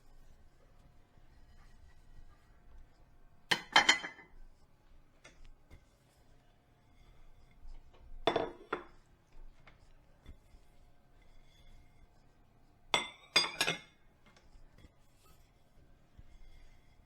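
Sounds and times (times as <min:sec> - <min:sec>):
dishes and glassware clinking: 0:03.5 - 0:04.3, 0:08.3 - 0:09.0, 0:12.9 - 0:14.0.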